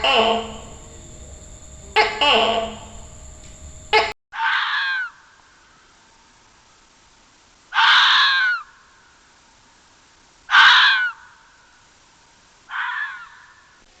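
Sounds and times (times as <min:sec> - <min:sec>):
harsh animal calls: 0:00.0 - 0:05.1.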